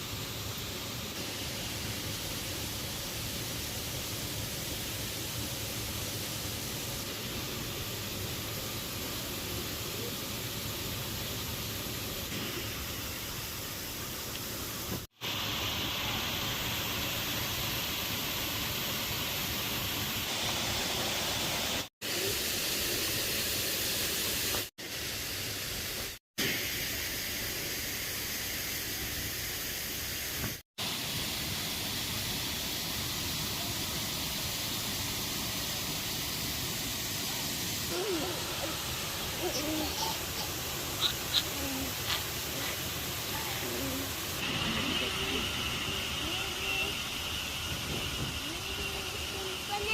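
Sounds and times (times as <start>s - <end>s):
waterfall rushing: 30.8s - 49.9s.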